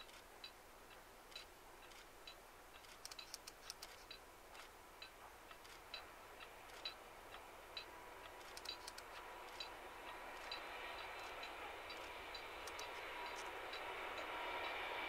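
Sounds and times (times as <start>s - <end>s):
distant train approaching: 0.0s - 15.0s
sharp clicks: 1.3s - 6.0s, 8.4s - 14.3s.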